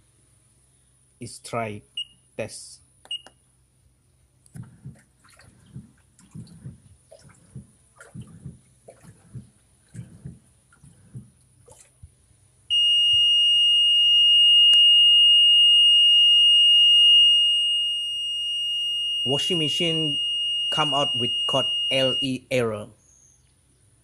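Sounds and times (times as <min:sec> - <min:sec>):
washing machine low thumps: 0:04.6 - 0:11.4
high-pitched alarm tone: 0:12.7 - 0:22.4.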